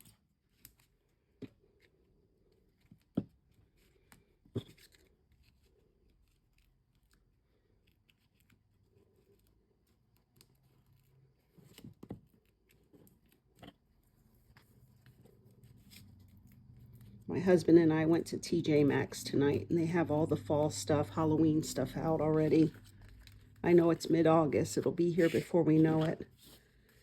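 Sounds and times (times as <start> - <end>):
paper rustling: 2.6 - 17.3, 21.8 - 27.0.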